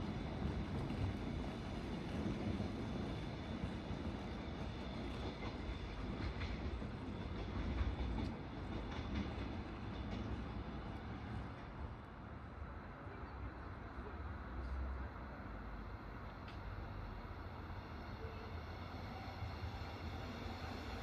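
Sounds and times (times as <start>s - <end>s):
train rumbling: 0.0s - 21.0s
faint clicks: 16.4s - 16.7s.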